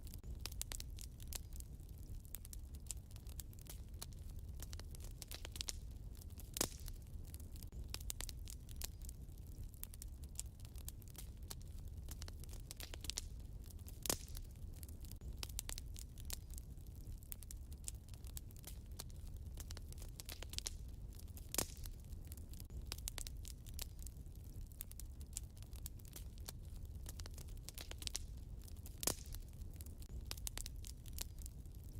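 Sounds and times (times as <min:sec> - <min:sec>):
fire pops: 0:00.0 - 0:31.9
wood fire crackling: 0:00.0 - 0:31.9.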